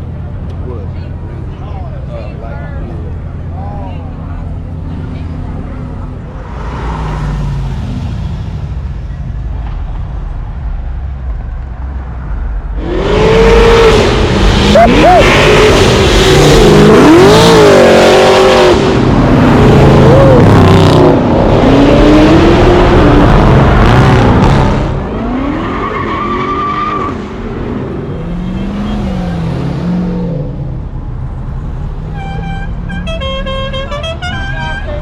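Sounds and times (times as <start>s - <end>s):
car engine revving: 10.8s - 33.0s
car horn toots: 32.1s - 35.0s.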